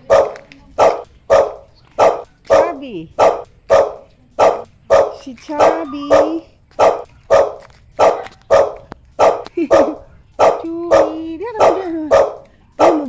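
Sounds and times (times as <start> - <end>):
small dog barking: 0.0 - 13.0.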